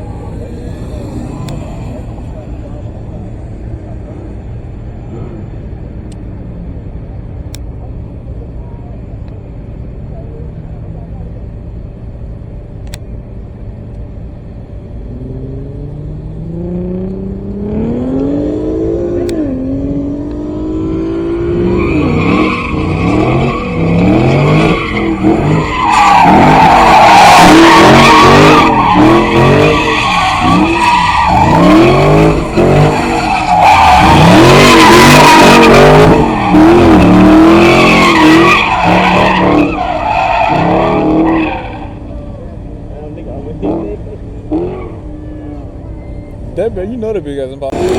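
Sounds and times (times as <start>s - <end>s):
car engine revving: 0.0s - 6.2s, 14.8s - 45.8s, 47.6s - 47.9s
tyres squealing: 21.6s - 42.0s.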